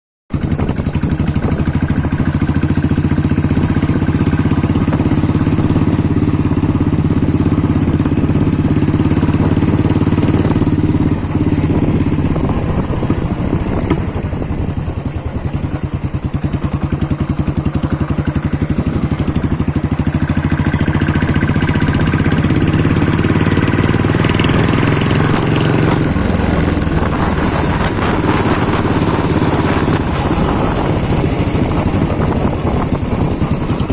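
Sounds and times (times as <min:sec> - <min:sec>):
motorcycle engine thumping exhaust: 0:00.3 - 0:33.9.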